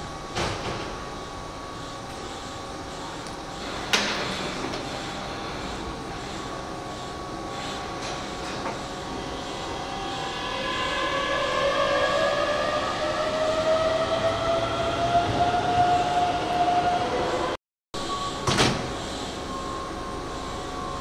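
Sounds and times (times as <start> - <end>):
electric train rumbling: 3.5 - 17.6.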